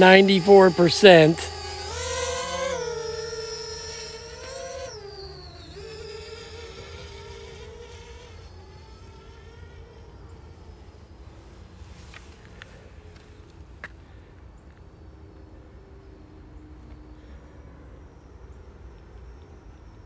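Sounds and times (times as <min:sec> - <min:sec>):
drone propellers buzzing: 0:00.0 - 0:10.6.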